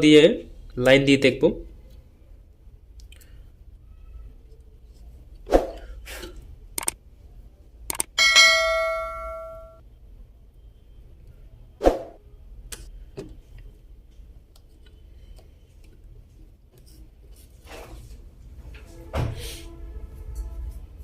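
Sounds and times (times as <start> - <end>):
metal object ringing: 8.2 - 9.8.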